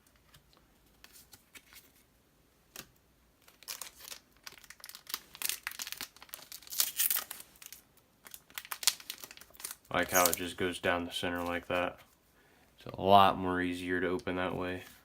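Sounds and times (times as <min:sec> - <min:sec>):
foil wrapper tearing and crinkling: 0:03.4 - 0:10.6.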